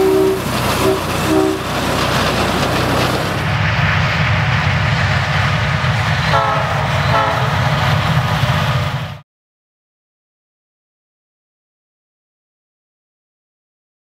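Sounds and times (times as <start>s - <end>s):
train horn toots: 0.0s - 1.7s, 6.3s - 7.7s
miniature train rumbling: 0.0s - 9.2s.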